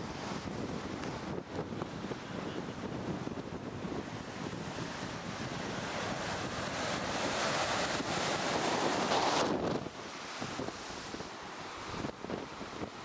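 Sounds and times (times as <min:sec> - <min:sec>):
heavy surf: 0:00.0 - 0:13.0
wind buffeting microphone: 0:00.0 - 0:13.0.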